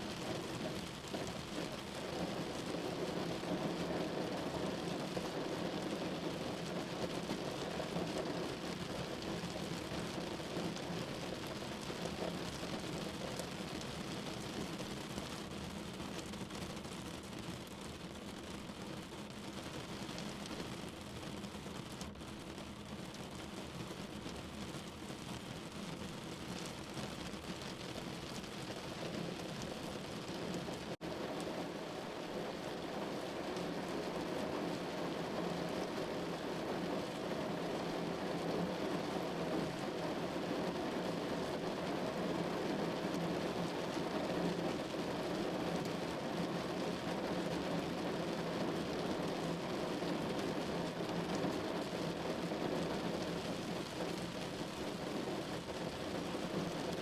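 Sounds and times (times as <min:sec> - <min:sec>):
rain on a window: 0:00.0 - 0:57.0.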